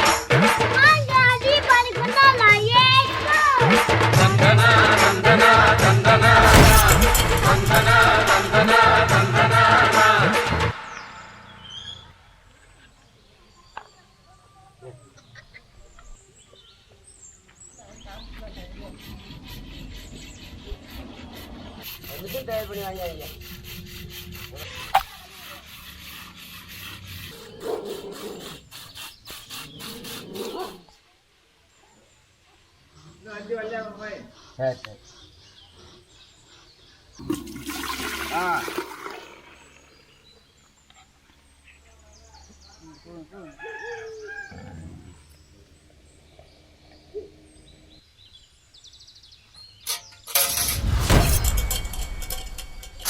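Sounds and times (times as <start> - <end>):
sharp knock: 6.2 - 9.4, 50.4 - 53.0
small birds twittering: 10.8 - 37.3, 39.6 - 50.3.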